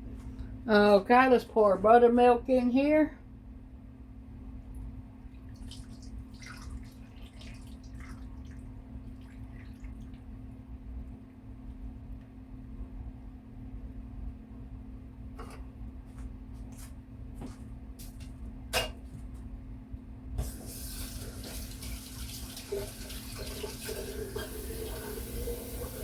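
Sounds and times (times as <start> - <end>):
liquid pouring into container: 5.3 - 10.4, 20.5 - 26.0.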